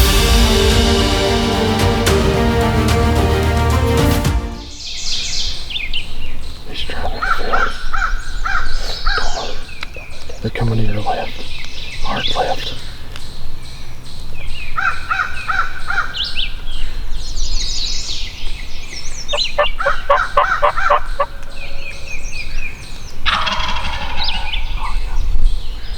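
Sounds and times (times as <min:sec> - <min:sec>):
songbirds chirping: 0:04.7 - 0:25.9
turkey gobbling: 0:19.3 - 0:21.5, 0:23.3 - 0:25.4.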